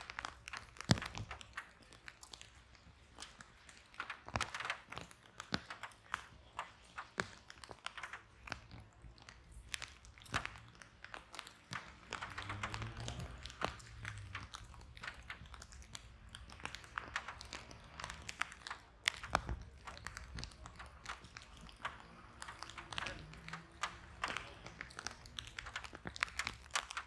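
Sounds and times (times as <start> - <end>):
wood fire crackling and popping: 0.0 - 27.0
low rumble of flames: 9.7 - 27.0.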